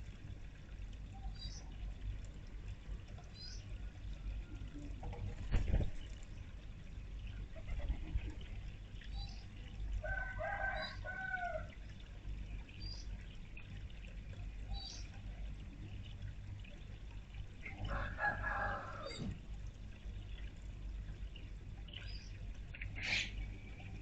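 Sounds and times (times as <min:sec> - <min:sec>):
small birds chirping: 0:01.2 - 0:01.8, 0:03.2 - 0:03.8, 0:14.7 - 0:15.2
rooster crowing: 0:10.0 - 0:11.7, 0:17.9 - 0:19.2.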